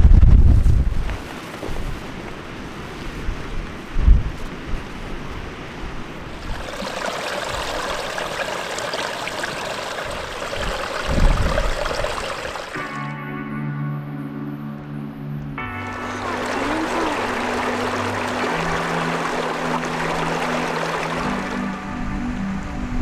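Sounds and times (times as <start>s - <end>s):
wind buffeting microphone: 0.0s - 13.0s
stream water rushing: 5.4s - 13.1s, 15.8s - 22.7s.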